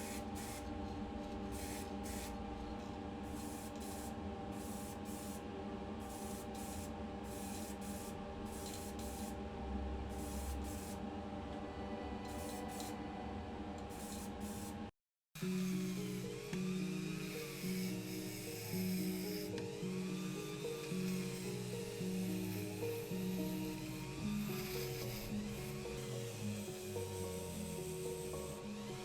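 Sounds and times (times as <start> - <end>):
spray paint hissing bursts: 0.0 - 0.6, 1.5 - 2.4, 3.4 - 5.4, 6.1 - 9.4, 10.2 - 11.0
music: 0.0 - 29.0
steady mechanical hum: 0.0 - 29.0.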